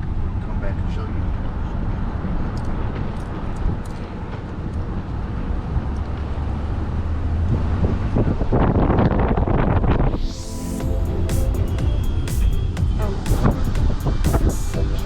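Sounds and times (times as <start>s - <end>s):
road and engine noise in car: 0.0s - 10.0s.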